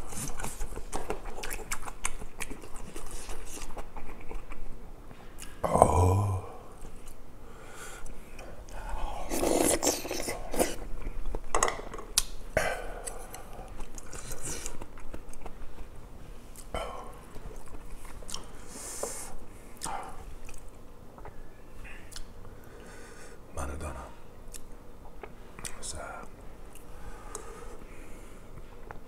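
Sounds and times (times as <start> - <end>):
wet chewing and mouth smacking: 0.0 - 4.7, 13.0 - 16.7, 17.3 - 18.5, 19.7 - 21.4.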